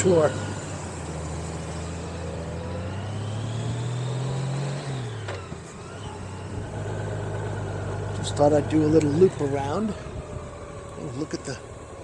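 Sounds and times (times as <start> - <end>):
wind and road rush: 0.0 - 12.0
motorcycle engine running: 5.6 - 12.0.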